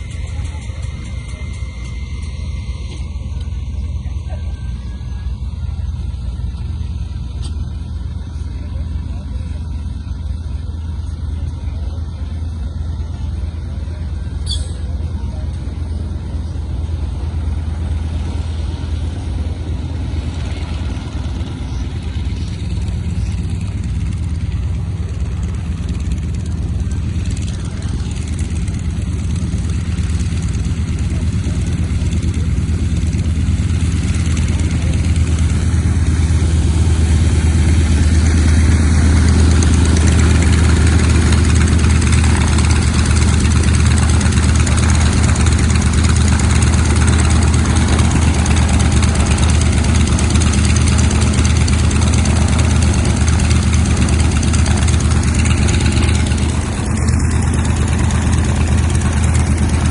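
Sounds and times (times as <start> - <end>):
piston aircraft engine running: 0.0 - 59.9.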